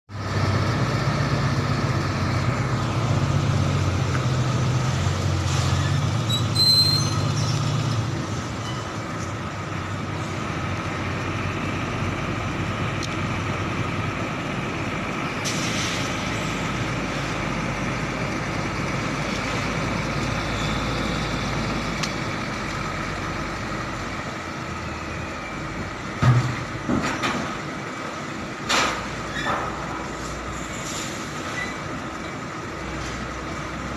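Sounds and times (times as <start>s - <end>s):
truck engine drone: 0.1s - 33.9s
air brake hiss: 15.4s - 16.5s, 30.2s - 31.7s.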